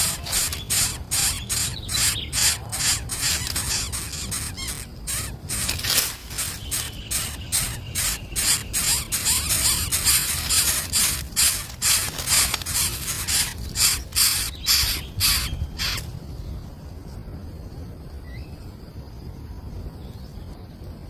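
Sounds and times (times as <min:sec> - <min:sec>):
nestling birds begging calls: 0:00.0 - 0:16.1.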